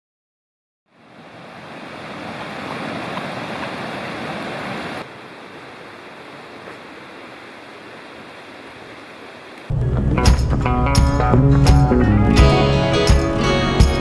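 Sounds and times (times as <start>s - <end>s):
rushing water or heavy rain: 0.9s - 9.8s.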